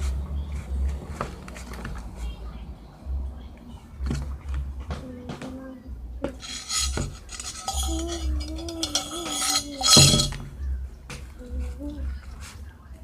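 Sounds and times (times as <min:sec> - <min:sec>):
utensil scraping a bowl: 0:06.4 - 0:10.4.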